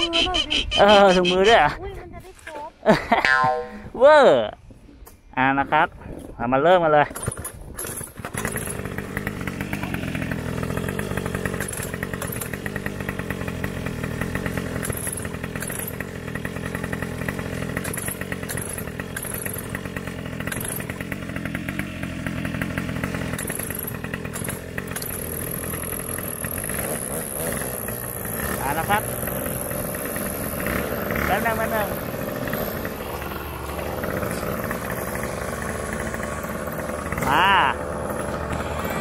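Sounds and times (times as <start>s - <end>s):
two-stroke engine idling: 7.0s - 39.0s.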